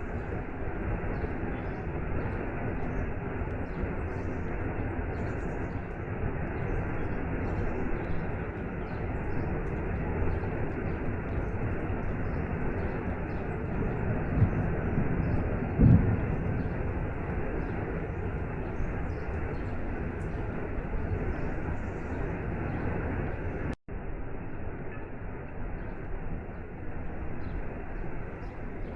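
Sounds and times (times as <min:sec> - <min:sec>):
rain: 0:00.0 - 0:28.9
low thumps: 0:15.7 - 0:17.4.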